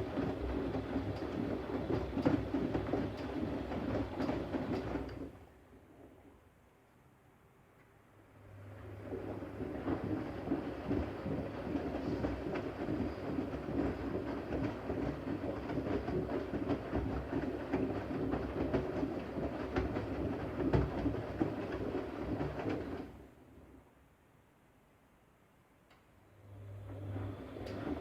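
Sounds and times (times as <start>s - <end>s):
washing machine drum turning: 0.0s - 5.1s, 27.2s - 28.0s.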